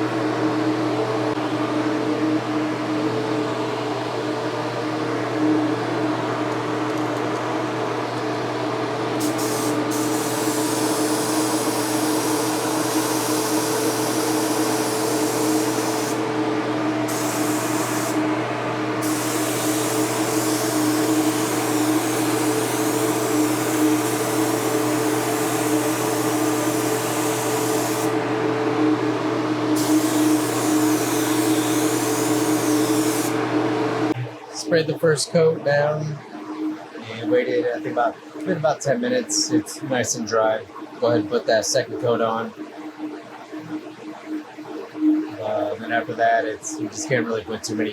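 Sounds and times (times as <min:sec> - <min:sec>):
steady motor hum: 0:00.0 - 0:47.9
air spray gun hissing: 0:09.2 - 0:16.3, 0:17.0 - 0:18.2, 0:19.0 - 0:28.2, 0:29.8 - 0:33.4.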